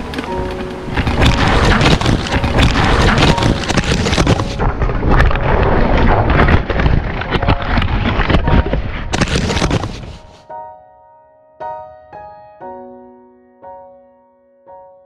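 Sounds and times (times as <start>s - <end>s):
raindrops striking camera: 0.0s - 10.4s.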